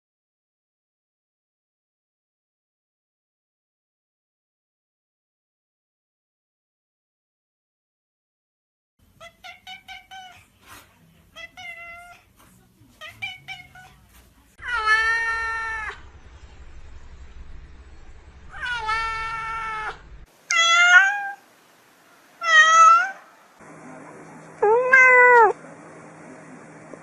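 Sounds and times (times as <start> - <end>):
cat meowing: 9.2 - 10.4, 11.4 - 12.3, 13.0 - 14.0, 14.6 - 16.0, 18.5 - 21.4, 22.4 - 23.3, 24.6 - 25.6.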